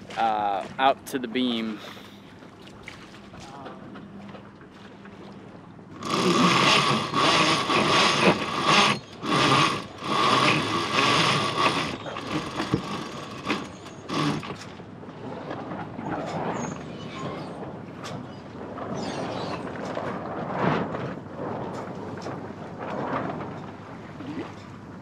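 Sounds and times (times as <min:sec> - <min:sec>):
gear knocking and rattling: 0:06.0 - 0:14.6
winch pawls ratcheting: 0:06.0 - 0:14.7.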